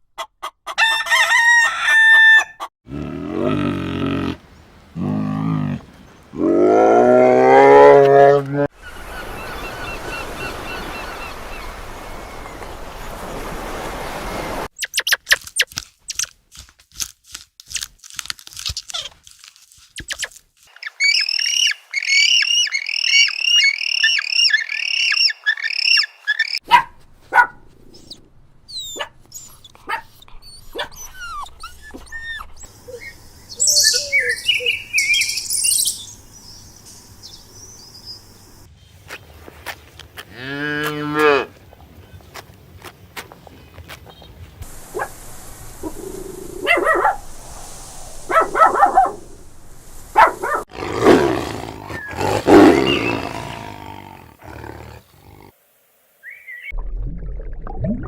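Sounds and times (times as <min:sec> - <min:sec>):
high chirping: 0:28.0 - 0:38.7
bird chirping: 0:28.0 - 0:39.0, 0:52.0 - 0:53.7
steady noisy hiss: 0:44.6 - 0:50.7.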